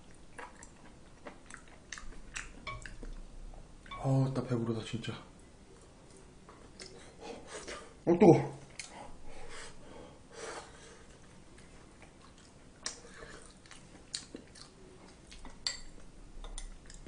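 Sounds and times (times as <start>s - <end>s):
man chewing food: 0.0s - 4.0s, 5.4s - 8.0s, 8.7s - 9.7s, 10.6s - 17.0s.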